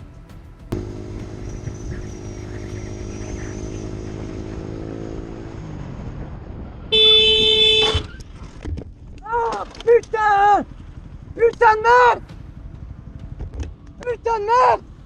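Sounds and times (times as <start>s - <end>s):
motorcycle engine running: 0.1s - 7.8s, 9.8s - 15.0s
vehicle horn: 6.9s - 8.2s.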